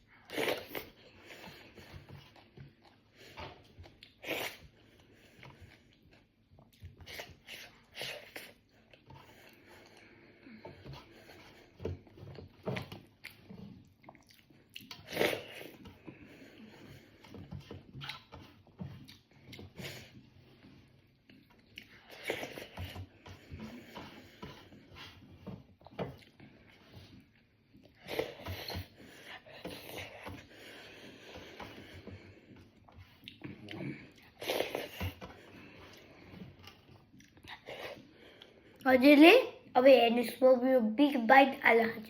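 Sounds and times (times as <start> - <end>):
person chewing food: 0.0 - 38.8.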